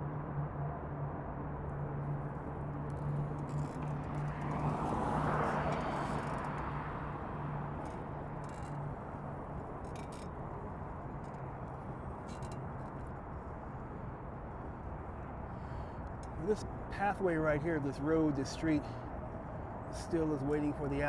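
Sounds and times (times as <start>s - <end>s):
road and traffic noise: 0.0s - 21.0s
vehicle hum: 0.0s - 21.0s.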